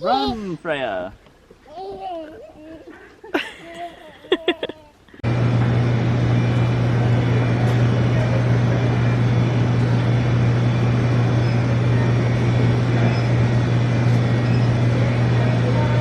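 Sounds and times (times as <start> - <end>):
vehicle hum: 5.2 - 16.0.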